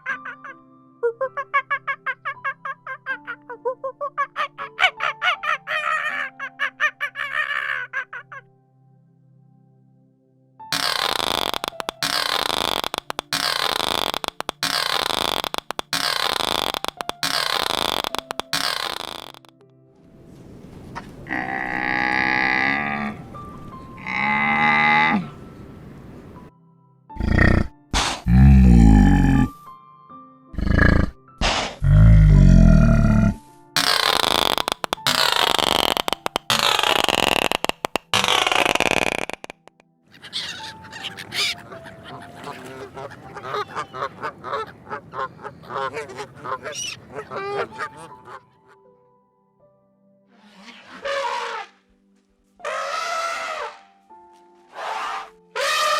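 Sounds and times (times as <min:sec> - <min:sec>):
waterfowl calling: 0:04.2 - 0:08.5, 0:10.7 - 0:19.5, 0:33.8 - 0:39.4, 0:40.1 - 0:48.8, 0:52.6 - 0:53.8, 0:54.7 - 0:55.9
cow mooing: 0:21.3 - 0:23.4, 0:24.0 - 0:25.4.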